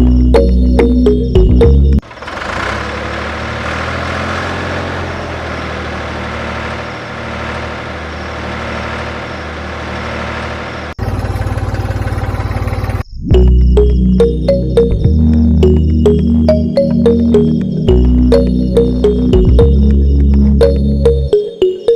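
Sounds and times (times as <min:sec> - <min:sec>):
small engine running rattling: 0:02.0 - 0:13.1.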